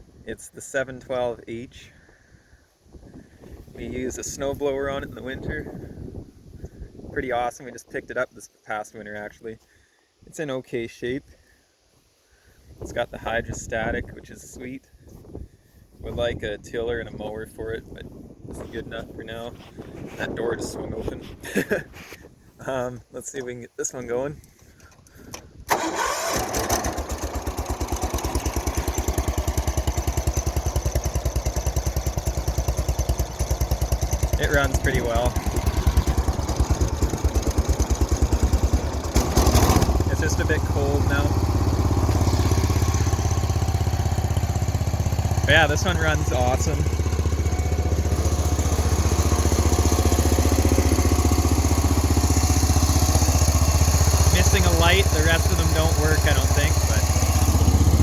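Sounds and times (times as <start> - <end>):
tractor engine starting and running: 24.4 - 58.0.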